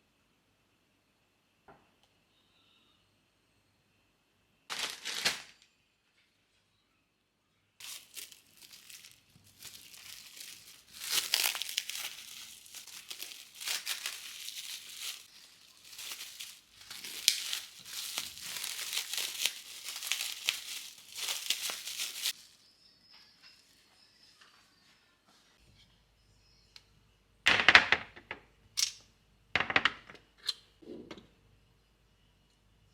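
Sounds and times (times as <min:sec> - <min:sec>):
crinkling and rustling: 0:04.7 - 0:05.7, 0:07.8 - 0:22.6.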